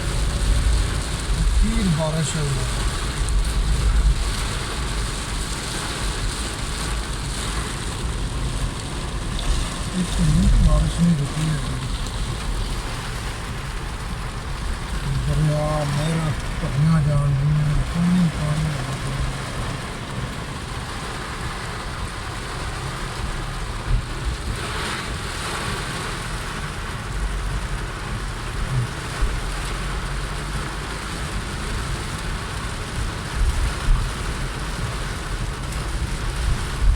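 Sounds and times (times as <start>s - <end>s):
heavy rain falling: 0.0s - 36.9s
low vehicle rumble: 0.0s - 36.9s.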